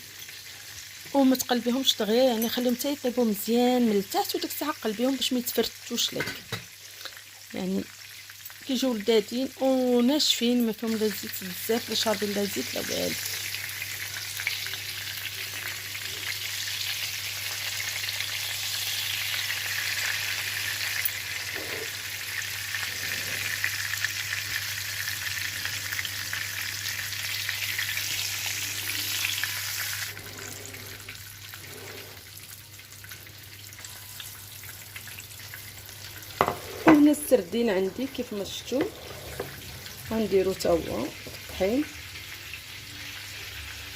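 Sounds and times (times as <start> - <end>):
fish fillets sizzling in oil: 0.0 - 43.9.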